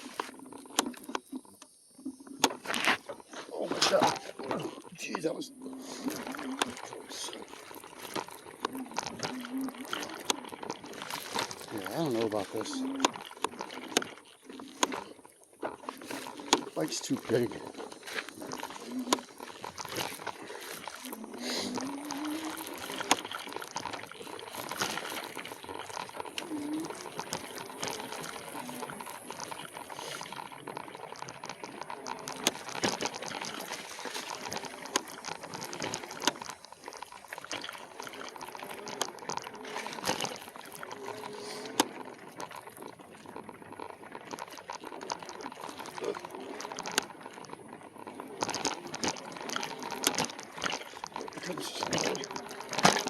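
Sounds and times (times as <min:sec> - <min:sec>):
sharp ticks and rattles: 0:04.0 - 0:53.0
dry leaves and twigs crackling: 0:06.2 - 0:42.6.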